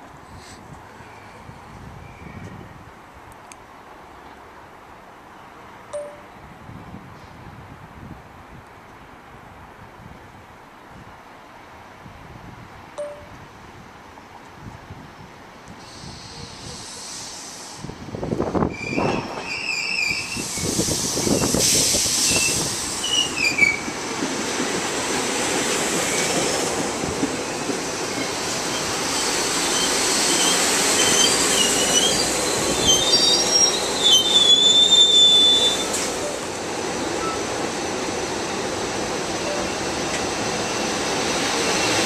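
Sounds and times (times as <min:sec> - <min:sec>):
train rolling and slowing: 0:15.8 - 0:42.0
wheel and brake squeals: 0:18.7 - 0:23.8, 0:28.7 - 0:36.1.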